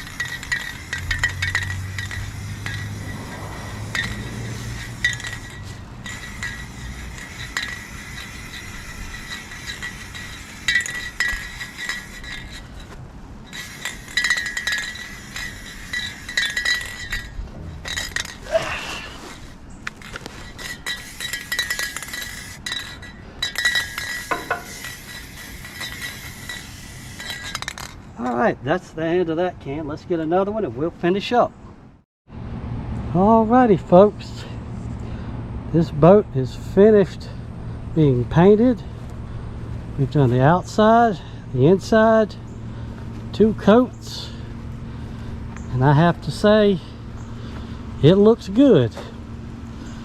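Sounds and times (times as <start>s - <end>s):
spray can hissing: 0.0s - 12.2s, 23.8s - 27.5s
mixing ball clinking in can: 19.3s - 28.0s.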